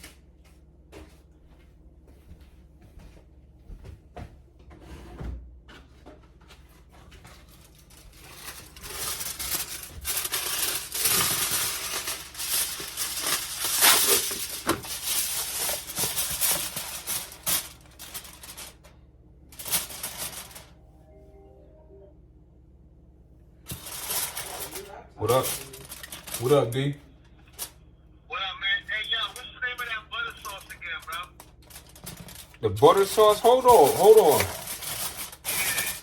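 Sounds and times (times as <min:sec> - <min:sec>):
wrapping crinkling and rustling: 0:06.5 - 0:20.8, 0:23.7 - 0:27.8, 0:28.7 - 0:36.0.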